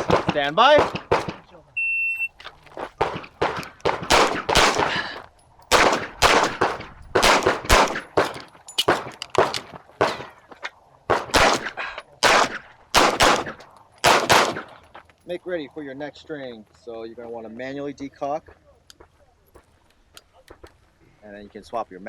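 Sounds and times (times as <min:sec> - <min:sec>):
pistol shots with echo: 0:00.0 - 0:01.6, 0:02.8 - 0:10.5, 0:11.1 - 0:14.8.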